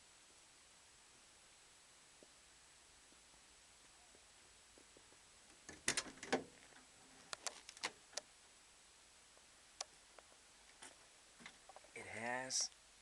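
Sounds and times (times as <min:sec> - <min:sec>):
sharp clicks and knocks: 0:04.8 - 0:08.3.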